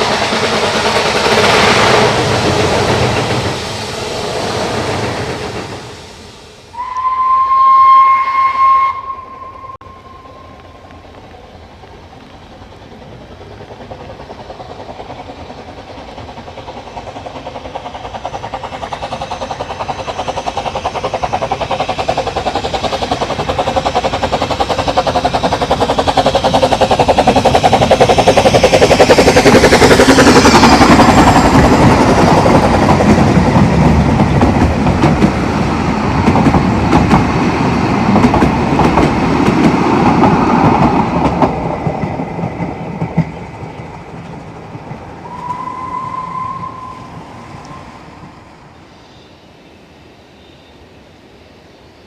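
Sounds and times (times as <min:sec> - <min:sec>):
steam train exhaust beats: 0:00.0 - 0:49.6
train wheels clattering: 0:08.4 - 0:48.5.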